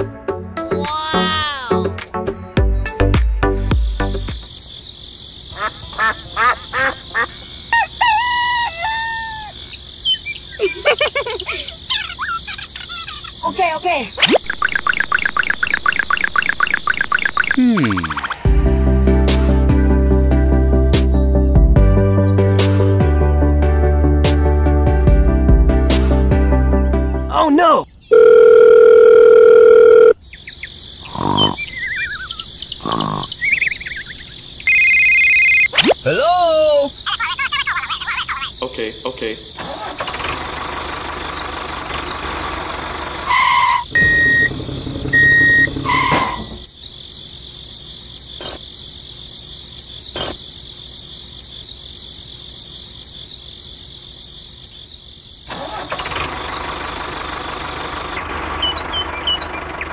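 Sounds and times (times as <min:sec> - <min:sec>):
little chirps: 0:05.5 - 0:18.5, 0:30.1 - 0:38.8
cartoon snoring: 0:17.5 - 0:18.2, 0:31.1 - 0:31.8, 0:32.8 - 0:33.4
electronic phone ringing: 0:28.1 - 0:30.2, 0:34.7 - 0:35.7
fast high-pitched chattering voice: 0:37.0 - 0:38.6.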